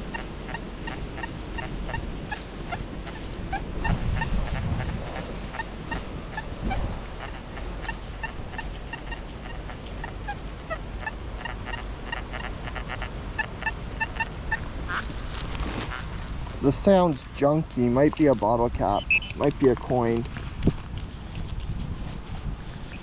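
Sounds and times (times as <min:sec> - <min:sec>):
wind rumble on microphone: 0:00.0 - 0:23.0
metal detector beeping: 0:18.8 - 0:20.0.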